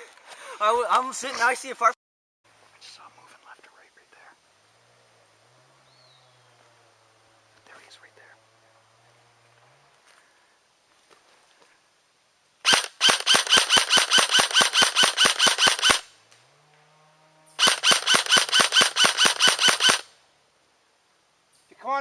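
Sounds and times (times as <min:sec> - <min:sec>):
airsoft gun firing rapidly: 0:12.6 - 0:16.1, 0:17.6 - 0:20.1.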